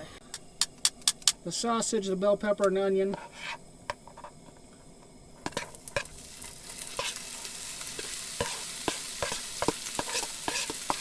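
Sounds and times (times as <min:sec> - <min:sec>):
food sizzling in a pan: 0:05.2 - 0:11.0.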